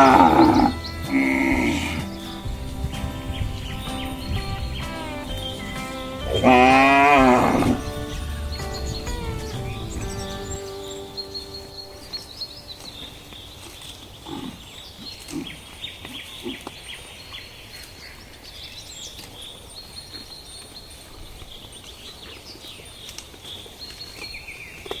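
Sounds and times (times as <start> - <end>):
low animal grunts: 0.0 - 2.5, 6.2 - 8.0, 14.1 - 16.8
insects and birds chirping: 0.0 - 25.0.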